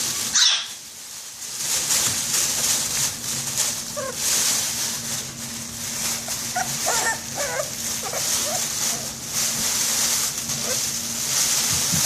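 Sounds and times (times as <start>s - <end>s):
puppies whimpering and yipping: 0.3s - 0.7s, 3.5s - 5.1s, 5.9s - 11.0s.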